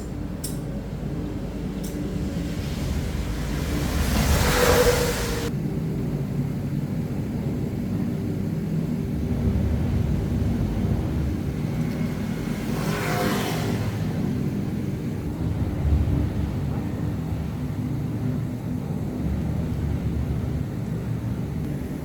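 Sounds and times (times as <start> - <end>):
low mechanical rumble: 0.0 - 22.0
burst of hiss: 2.2 - 5.5.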